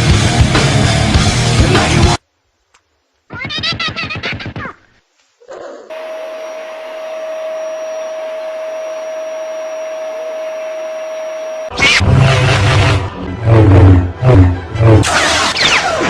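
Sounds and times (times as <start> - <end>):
electric motor whirring: 5.9 - 14.4.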